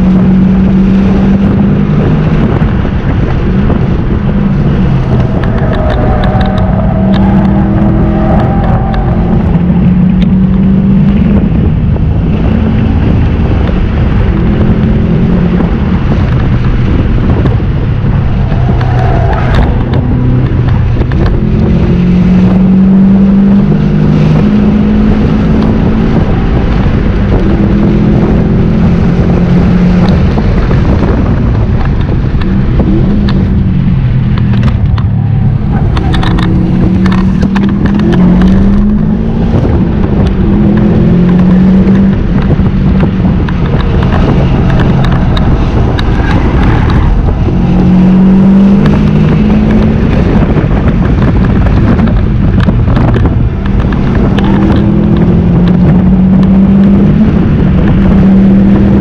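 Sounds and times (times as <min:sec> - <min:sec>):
car engine revving: 0:00.0 - 0:59.0
road and wind noise: 0:00.0 - 0:59.0.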